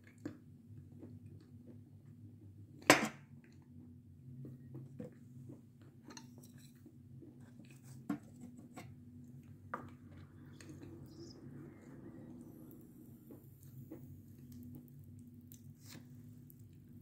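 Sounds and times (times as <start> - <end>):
chewing crunchy meringue: 9.2 - 17.0.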